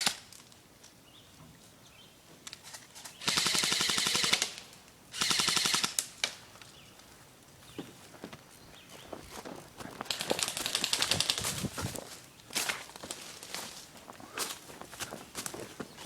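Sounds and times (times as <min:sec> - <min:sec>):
airsoft rifle bursts: 0:03.2 - 0:06.1.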